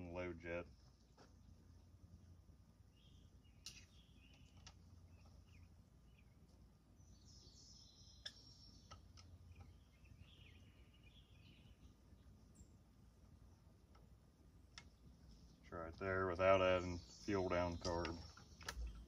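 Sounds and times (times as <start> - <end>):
faint bird chirps: 2.9 - 12.8.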